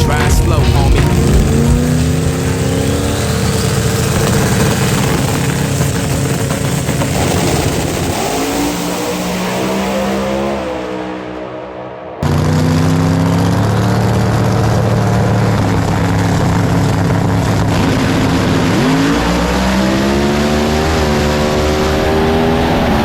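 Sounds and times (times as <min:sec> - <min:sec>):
truck engine revving loudly: 0:00.0 - 0:23.0.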